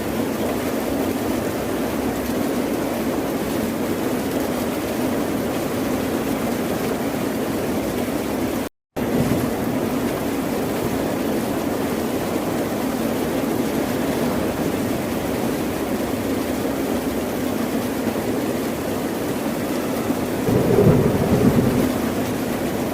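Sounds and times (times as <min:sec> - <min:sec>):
ocean surf: 0:19.5 - 0:22.9.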